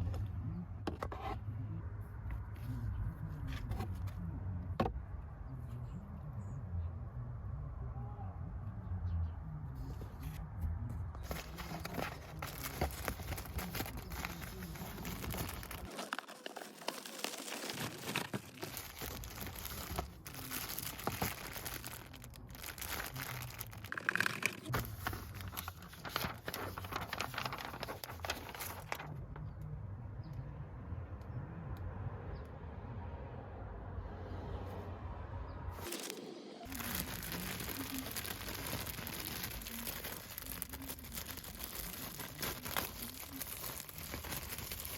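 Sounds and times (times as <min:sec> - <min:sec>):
air filter crinkling: 0:11.2 - 0:29.1, 0:35.8 - 0:44.9.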